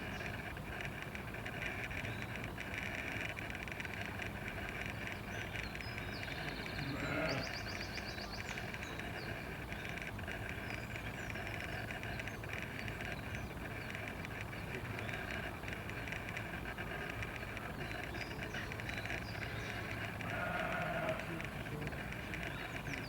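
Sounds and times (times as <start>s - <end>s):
animal call: 6.8s - 7.5s, 19.7s - 21.5s.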